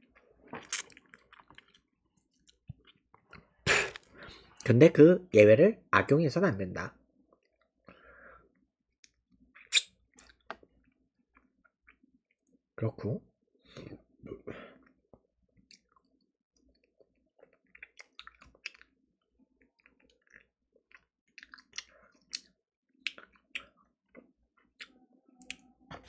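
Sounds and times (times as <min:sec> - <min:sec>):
person chewing: 0:00.4 - 0:04.2, 0:15.7 - 0:19.0, 0:19.7 - 0:26.0.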